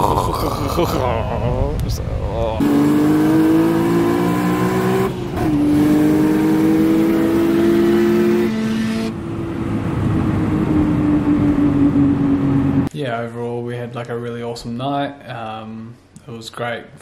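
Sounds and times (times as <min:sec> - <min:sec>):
car engine at full throttle: 0:00.0 - 0:12.9.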